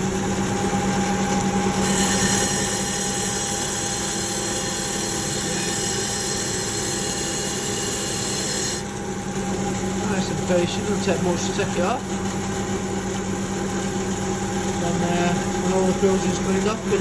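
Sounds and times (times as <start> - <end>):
tool hissing on rim: 1.8 - 8.9, 14.6 - 17.0.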